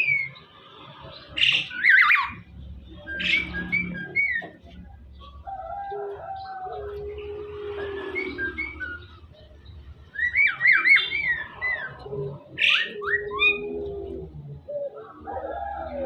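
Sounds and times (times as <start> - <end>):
myna whistling song: 1.4 - 4.6, 7.6 - 9.3, 10.1 - 13.9.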